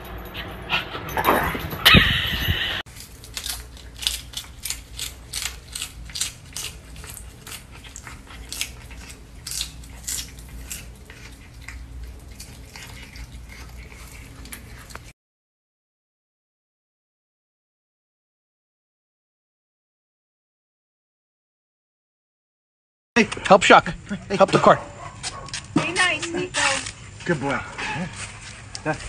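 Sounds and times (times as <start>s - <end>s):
cat chewing crisp vegetable: 2.9s - 15.1s.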